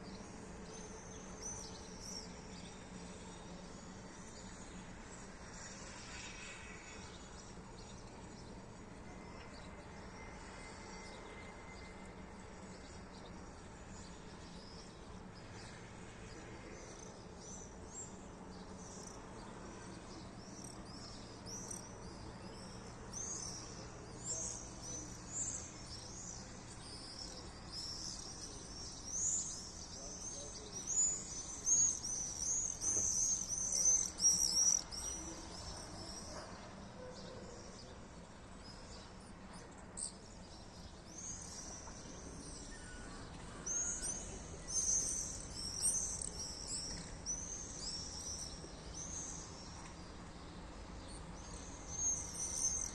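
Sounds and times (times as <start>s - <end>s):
swallows twittering: 18.9s - 36.2s.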